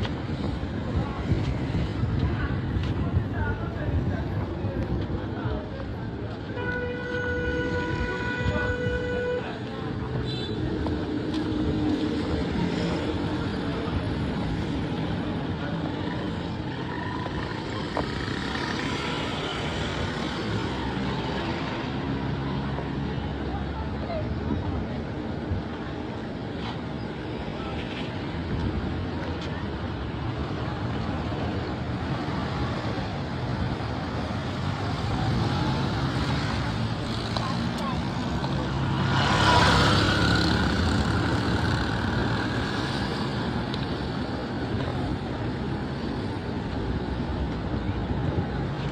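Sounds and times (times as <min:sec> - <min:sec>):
vehicle engines running: 0:10.7 - 0:48.9.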